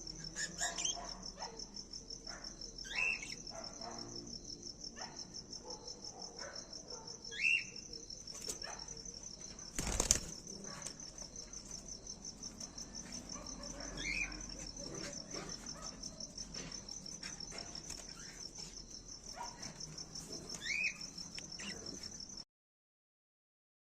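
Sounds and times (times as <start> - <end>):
insects trilling: 0.0 - 22.4.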